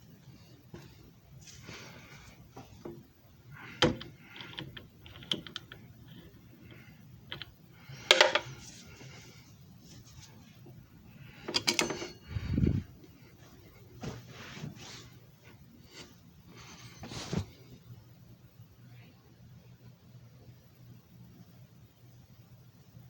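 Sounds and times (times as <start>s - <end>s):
plastic clicks and rattles: 3.6s - 8.6s.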